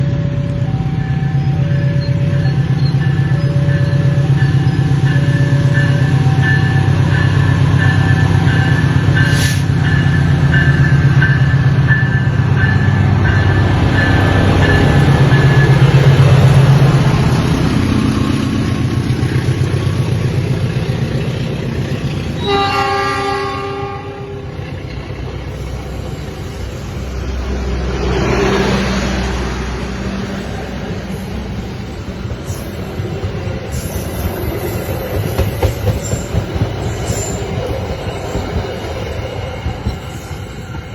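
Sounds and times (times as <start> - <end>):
locomotive engine rumble: 0.0 - 40.9
level crossing alarm beeps: 0.3 - 16.2
train horn blast: 22.4 - 24.6
train wheels rolling: 24.4 - 40.9.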